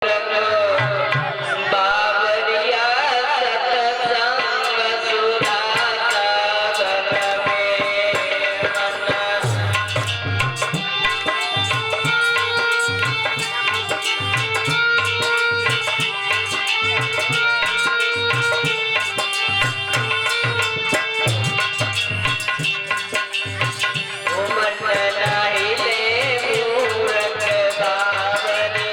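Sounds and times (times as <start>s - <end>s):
tabla playing steady rhythm: 0.0s - 28.9s.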